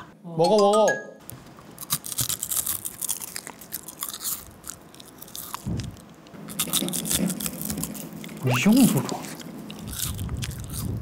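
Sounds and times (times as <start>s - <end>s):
crunchy chewing of edible paper: 1.7s - 11.0s.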